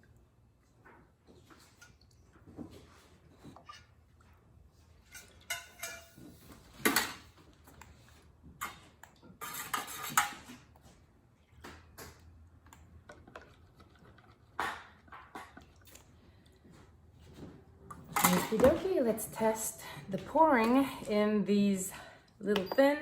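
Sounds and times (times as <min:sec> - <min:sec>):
metal utensils clinking: 0:05.0 - 0:07.3, 0:18.1 - 0:18.9.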